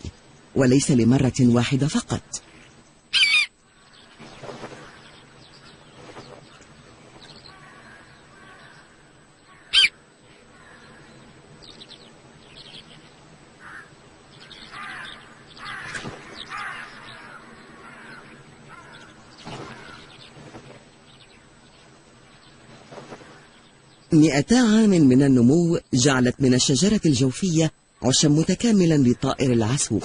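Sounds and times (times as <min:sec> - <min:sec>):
birds giving harsh calls: 0:02.7 - 0:24.2.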